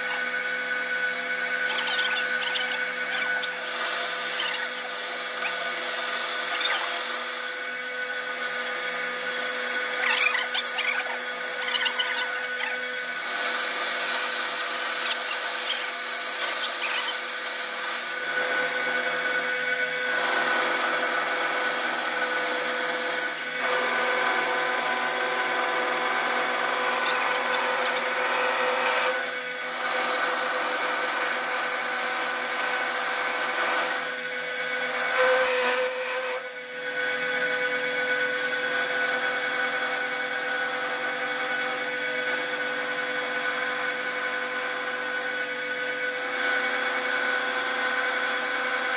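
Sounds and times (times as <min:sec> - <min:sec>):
machine tool cutting metal: 0:00.0 - 0:48.9
scratchy bursts: 0:01.4 - 0:07.6.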